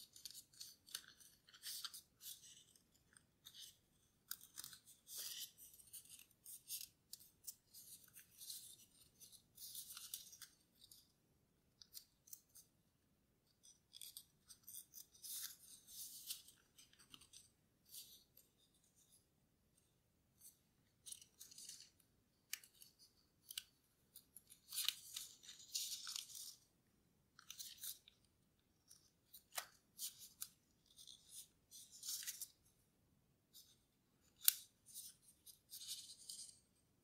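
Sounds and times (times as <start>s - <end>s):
paper crinkling and rustling: 0.0s - 11.0s, 21.0s - 26.6s.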